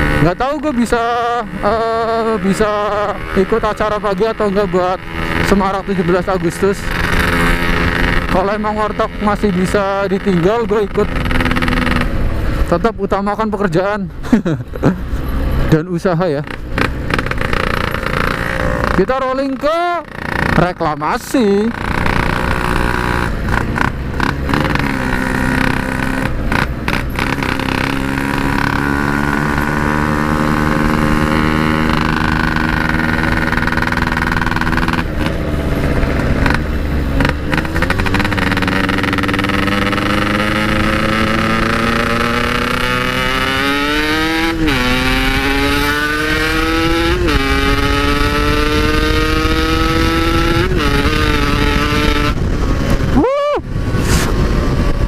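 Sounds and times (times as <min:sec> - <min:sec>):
two-stroke motorcycle engine: 0:00.0 - 0:12.8, 0:15.7 - 0:53.2.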